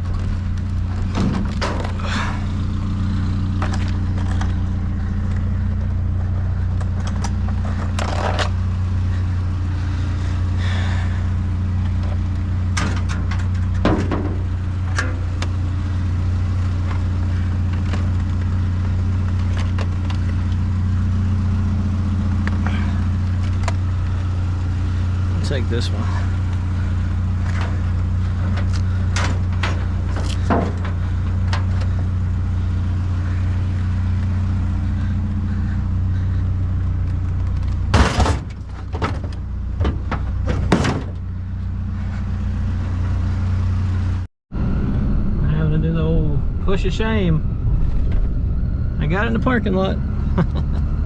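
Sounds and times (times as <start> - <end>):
knocks and rattles: 0.0 - 2.5, 11.8 - 15.6, 27.3 - 32.3, 34.7 - 41.3
vehicle engine humming: 0.0 - 51.0.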